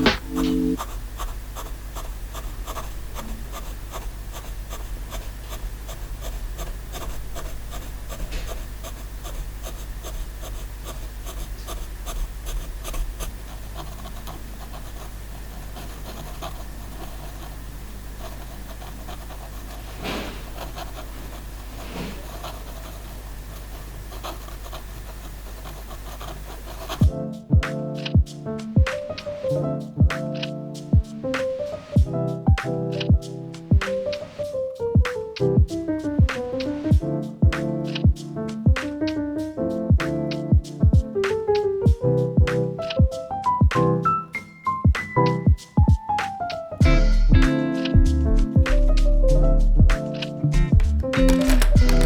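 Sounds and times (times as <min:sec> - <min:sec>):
steady low hum: 0:00.0 - 0:28.9
pen scratching on paper: 0:00.0 - 0:34.5, 0:50.0 - 0:52.0.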